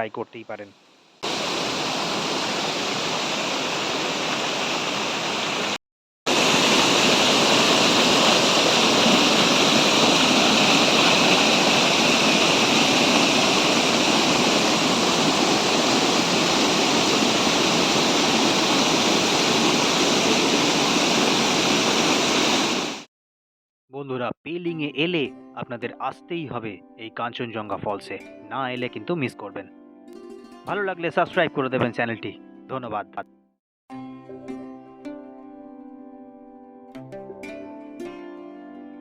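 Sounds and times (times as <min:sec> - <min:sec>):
waterfall rushing: 0:01.2 - 0:23.1.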